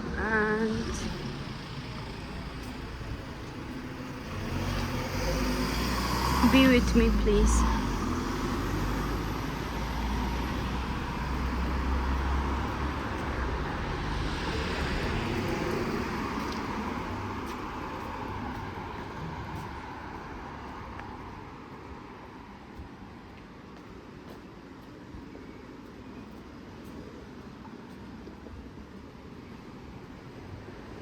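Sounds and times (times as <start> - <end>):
passing vehicle rumble: 0.0 - 22.6.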